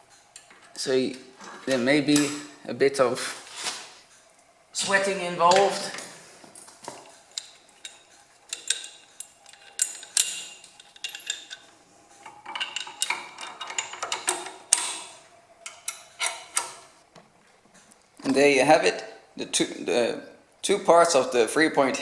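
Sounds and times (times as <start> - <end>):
metal parts clinking and knocking: 7.3 - 16.7.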